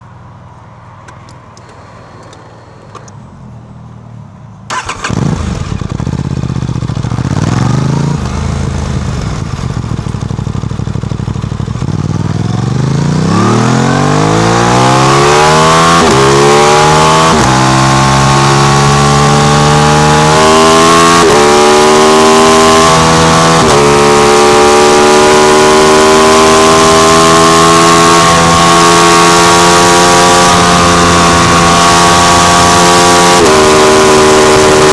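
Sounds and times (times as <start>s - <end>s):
motorcycle engine revving: 4.7s - 34.9s.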